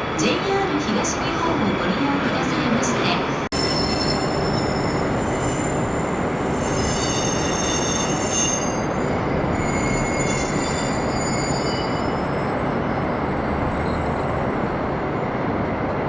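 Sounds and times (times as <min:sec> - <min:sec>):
freight train rumbling: 0:00.0 - 0:16.0
wheels and brakes squealing: 0:03.6 - 0:14.8.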